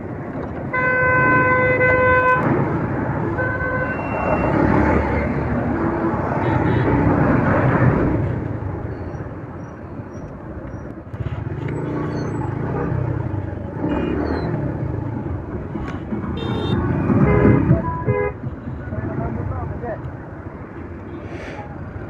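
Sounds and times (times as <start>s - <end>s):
passing traffic: 0.0s - 22.0s
vehicle horn: 0.7s - 2.5s, 3.3s - 4.5s, 6.4s - 6.9s, 13.8s - 14.3s, 16.4s - 18.4s.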